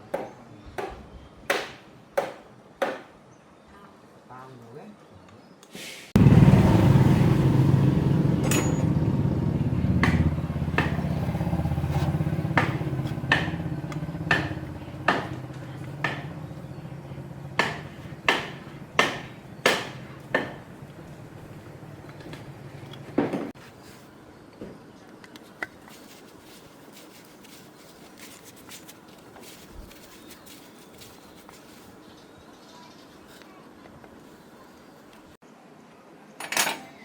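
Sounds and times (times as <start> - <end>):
engine running: 6.2 - 23.6
hammer striking metal: 8.4 - 9.1, 10.0 - 11.1, 12.5 - 15.4, 17.6 - 20.7.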